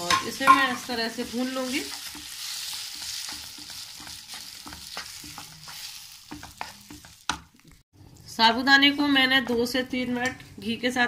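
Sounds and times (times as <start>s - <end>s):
spatula tapping and scraping pan: 0.0s - 7.8s
sago sizzling in ghee: 0.0s - 7.9s.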